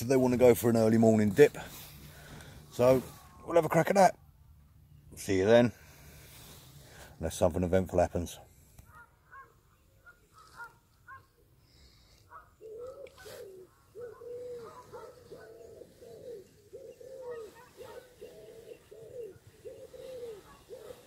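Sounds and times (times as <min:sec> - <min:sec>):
bird low clean calls: 0:08.8 - 0:21.0.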